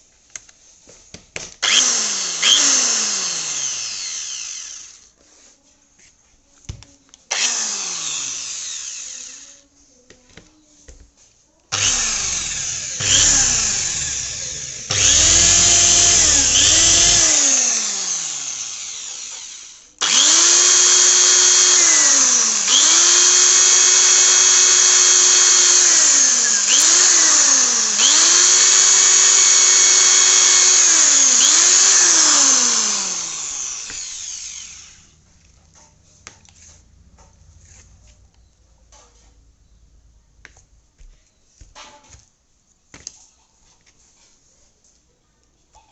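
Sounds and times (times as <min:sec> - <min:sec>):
electric drill motor whining: 0:01.6 - 0:05.1, 0:07.3 - 0:09.6, 0:11.7 - 0:35.2.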